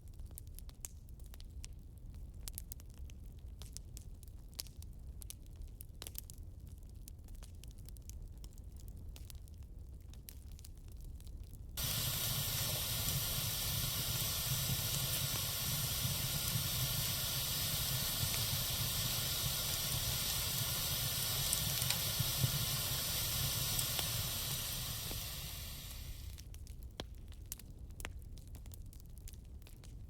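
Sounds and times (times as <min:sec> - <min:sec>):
wood fire hissing: 0:11.8 - 0:26.4
fire crackles: 0:11.8 - 0:30.0.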